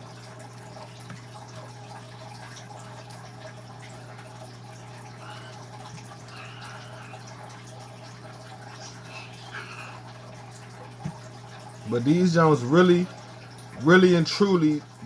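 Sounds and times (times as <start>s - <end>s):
water dripping and splashing: 0.0s - 15.0s
steady low hum: 4.9s - 15.0s.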